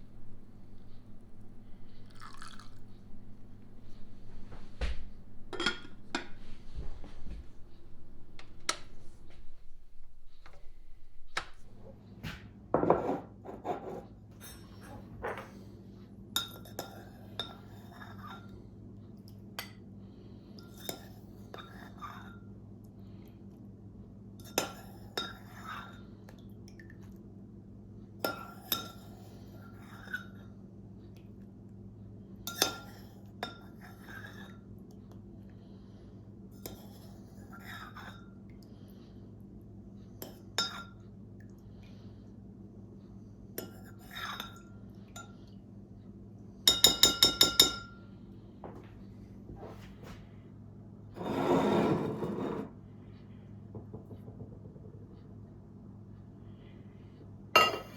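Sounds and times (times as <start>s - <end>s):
low steady hum: 0.0s - 57.9s
metal utensil clinking glassware: 5.5s - 6.4s.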